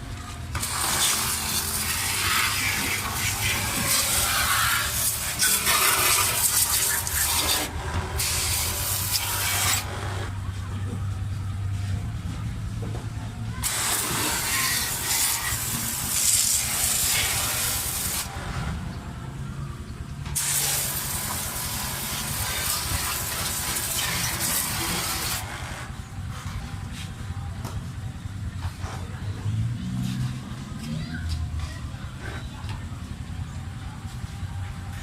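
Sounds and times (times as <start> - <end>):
compressed air hissing: 13.6 - 18.3, 20.4 - 25.4.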